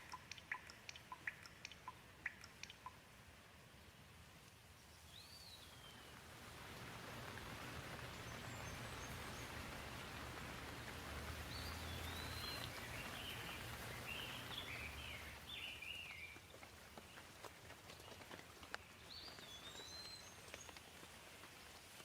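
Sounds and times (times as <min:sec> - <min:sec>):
bird chirping: 0:00.0 - 0:03.0, 0:04.8 - 0:06.2, 0:11.4 - 0:17.2, 0:18.0 - 0:20.8
gentle rain falling: 0:00.0 - 0:22.0.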